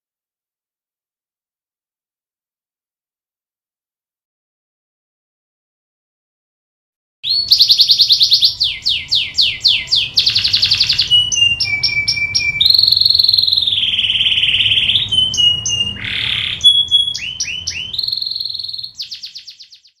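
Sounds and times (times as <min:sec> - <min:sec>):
canary singing: 0:07.2 - 0:20.0.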